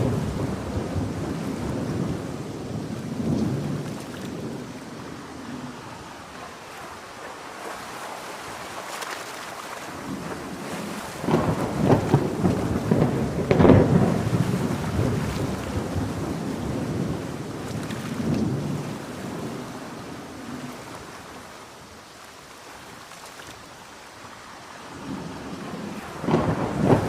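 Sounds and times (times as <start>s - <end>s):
crackling peal of thunder: 0.0s - 6.4s, 9.9s - 20.9s, 24.8s - 27.0s
thunder rumbling: 0.0s - 7.8s, 9.9s - 21.1s, 24.8s - 27.0s
heavy rain: 0.0s - 27.0s.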